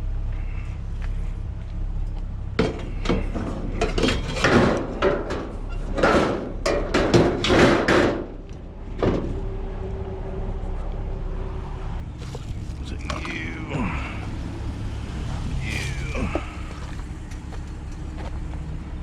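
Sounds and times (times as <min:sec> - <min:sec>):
low hum: 0:00.0 - 0:19.0
hard objects knocking and clattering: 0:02.6 - 0:08.3.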